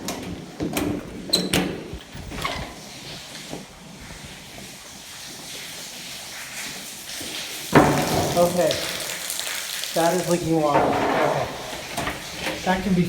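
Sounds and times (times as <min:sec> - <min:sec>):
water hissing from leaking pipe: 0:02.6 - 0:13.0
knocks and clunks in echoey room: 0:07.7 - 0:09.4, 0:10.2 - 0:13.0.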